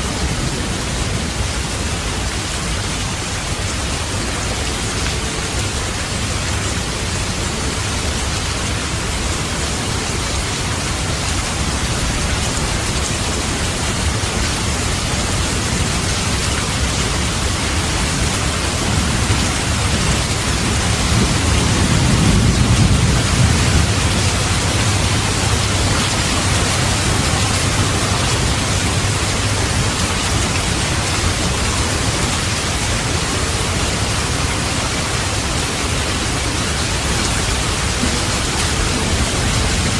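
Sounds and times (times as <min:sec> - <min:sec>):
rain hissing: 0:00.0 - 0:39.9
low rumble of thunder: 0:17.9 - 0:30.5.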